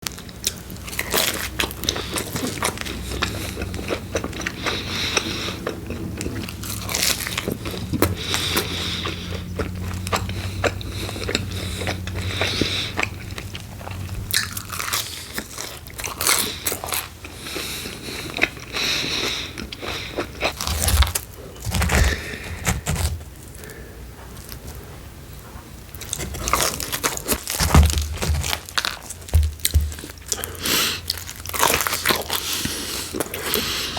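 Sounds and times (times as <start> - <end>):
biting and chewing pizza: 0.0 - 33.9
crust crunching: 20.1 - 24.8, 25.9 - 33.9.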